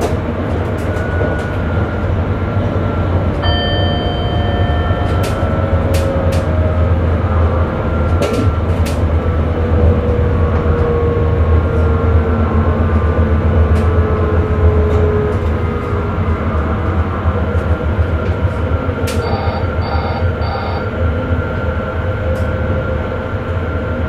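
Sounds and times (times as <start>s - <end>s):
wheels clicking on track: 0.0s - 7.0s
train rumble with motor whine: 0.0s - 24.0s.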